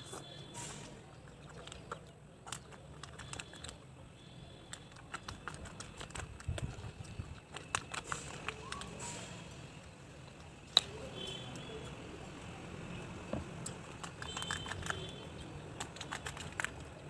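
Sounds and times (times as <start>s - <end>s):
mouth clicks and smacks: 1.0s - 3.9s, 4.6s - 9.1s, 13.6s - 17.0s
person chewing food: 1.1s - 3.8s, 4.7s - 8.9s, 13.6s - 17.0s.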